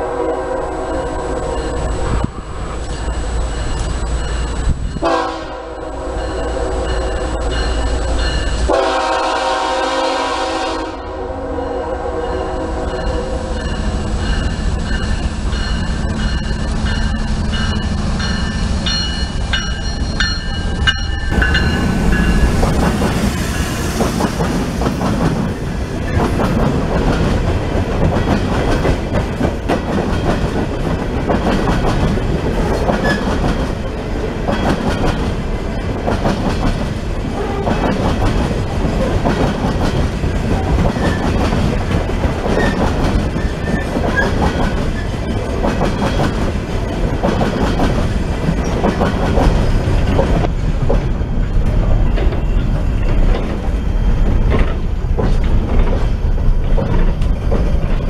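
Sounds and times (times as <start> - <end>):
pulsing high ringing: 12.2 - 22.7
train wheels clicking over rail joints: 13.6 - 58.0.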